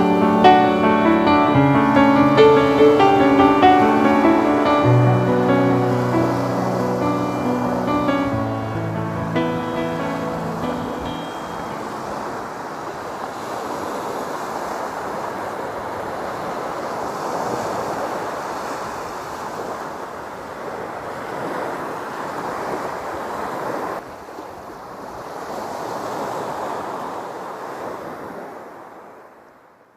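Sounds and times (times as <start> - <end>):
ocean surf washing onto beach: 0.0 - 29.5.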